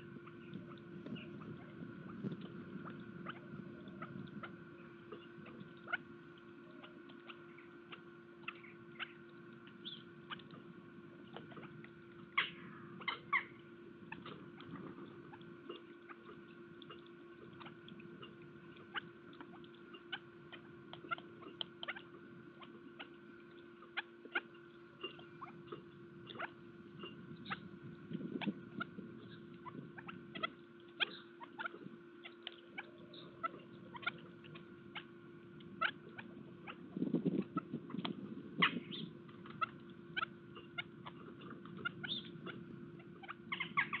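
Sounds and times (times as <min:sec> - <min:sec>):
birds pecking at feeder: 0:00.0 - 0:44.0
steady hum: 0:00.0 - 0:44.0.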